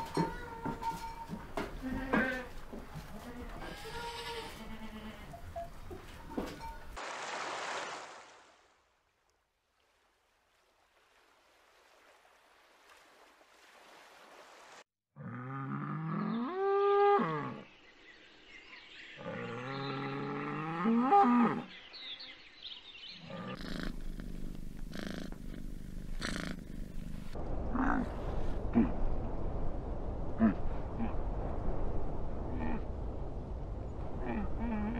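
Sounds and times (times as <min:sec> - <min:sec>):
steady rushing noise: 0:26.9 - 0:34.7.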